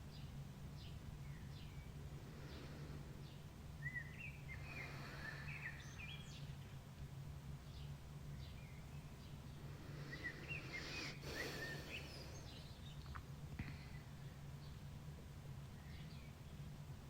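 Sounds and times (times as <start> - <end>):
low steady hum: 0.0 - 17.0
songbirds singing: 0.0 - 17.0.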